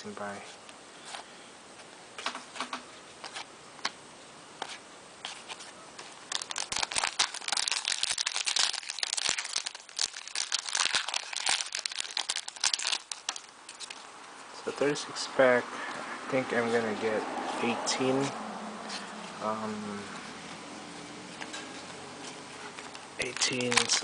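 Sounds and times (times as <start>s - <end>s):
wrapper tearing and crinkling: 5.4s - 14.0s, 22.9s - 24.0s.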